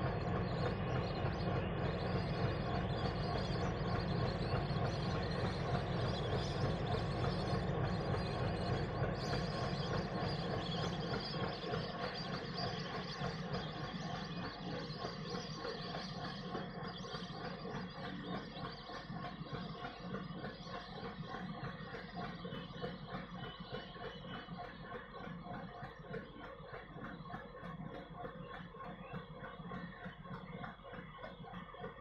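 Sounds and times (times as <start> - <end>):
coaches rumbling on rails: 0.0 - 25.0
diesel locomotive engine under load: 0.0 - 32.0.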